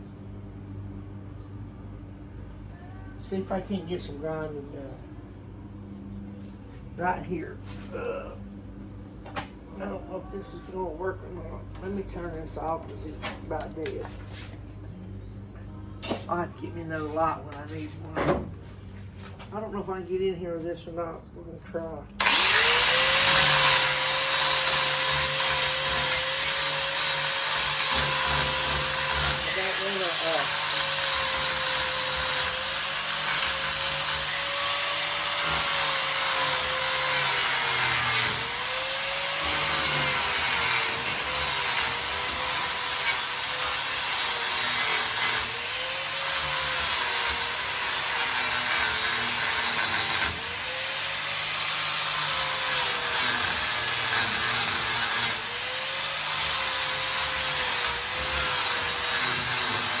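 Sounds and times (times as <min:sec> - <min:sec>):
angle grinder grinding metal: 0:22.2 - 1:00.0.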